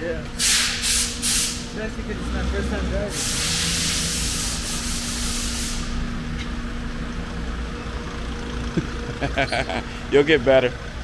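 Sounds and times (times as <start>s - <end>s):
van engine and road rumble: 0.0s - 11.0s
rushing hiss: 0.4s - 1.8s, 3.0s - 6.1s.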